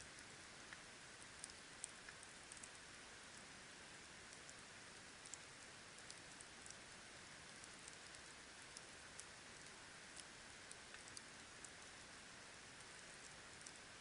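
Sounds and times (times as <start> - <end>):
campfire crackling and popping: 0.1 - 14.0.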